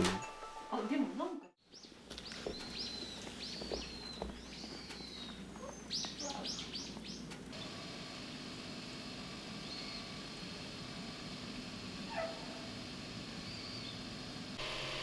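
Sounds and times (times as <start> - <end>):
small bird chirping: 1.6 - 7.7, 9.6 - 10.2, 13.4 - 14.1.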